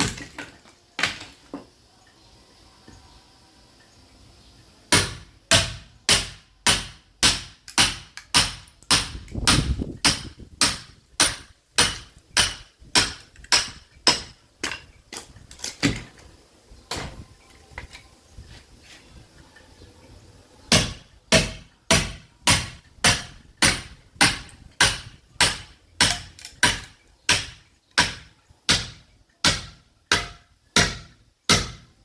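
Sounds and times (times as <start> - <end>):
sledgehammer striking steel chisel: 4.9 - 15.0, 20.7 - 31.9.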